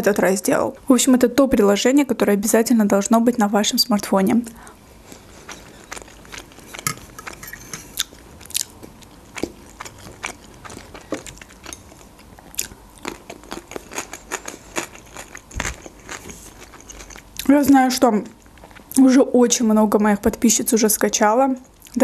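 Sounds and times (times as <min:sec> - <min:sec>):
person chewing food: 0:04.6 - 0:17.5.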